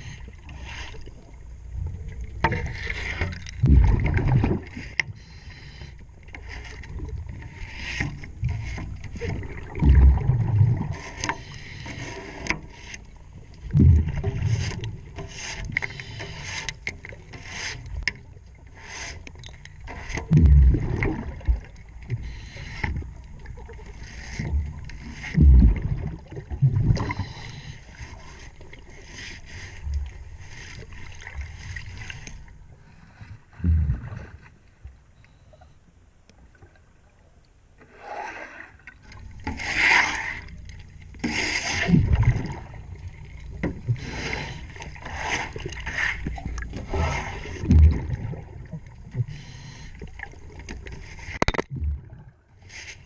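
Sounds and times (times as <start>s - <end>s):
exhaled regulator bubbles: 1.8s - 5.4s, 8.4s - 11.0s, 13.6s - 15.1s, 20.3s - 28.8s, 41.7s - 49.5s, 51.4s - 52.6s
tool scraping a propeller: 41.2s - 42.0s.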